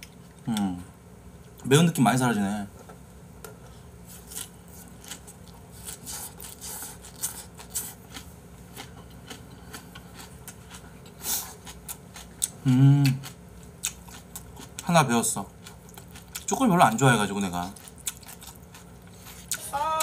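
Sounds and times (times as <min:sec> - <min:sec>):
person chewing food: 0:04.1 - 0:14.9, 0:15.6 - 0:19.7.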